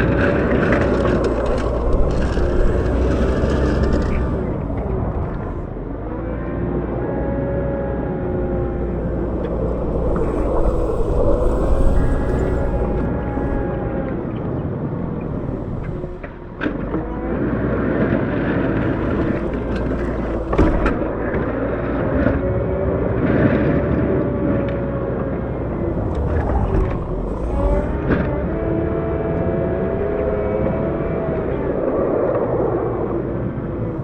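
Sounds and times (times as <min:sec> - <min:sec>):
diesel engine running: 0:00.0 - 0:34.0
whining tones: 0:00.0 - 0:34.0.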